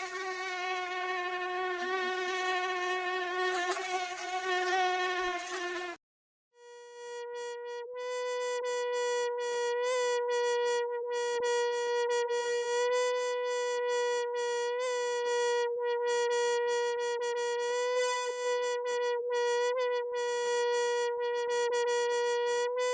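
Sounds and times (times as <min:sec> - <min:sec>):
mosquito whining: 0:00.0 - 0:06.0.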